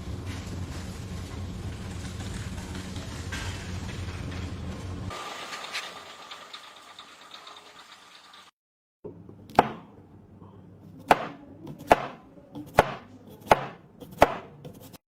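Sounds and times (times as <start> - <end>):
knife chopping on hard surface: 11.1 - 15.0.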